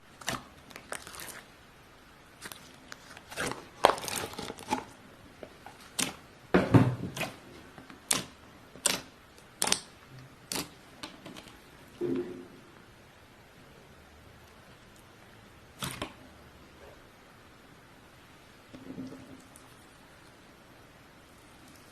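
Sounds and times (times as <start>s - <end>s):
slime clicking and squelching: 0.1s - 1.5s, 2.4s - 6.3s, 7.1s - 12.0s.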